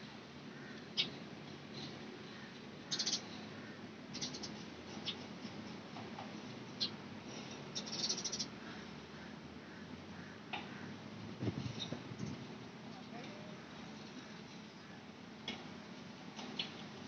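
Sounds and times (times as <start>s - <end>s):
low background rumble: 0.0s - 17.0s
birds chirping: 0.4s - 5.6s, 6.7s - 12.4s, 16.4s - 17.0s.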